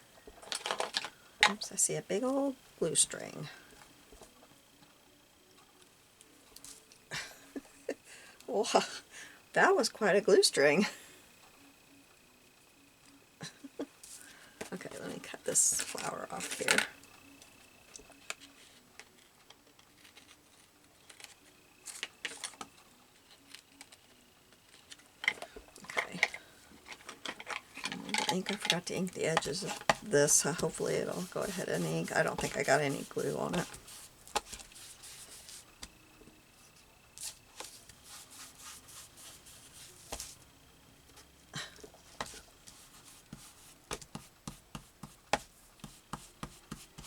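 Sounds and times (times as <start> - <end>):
paper rustling and rubbing: 27.1 - 35.9, 37.2 - 40.4, 42.2 - 47.0.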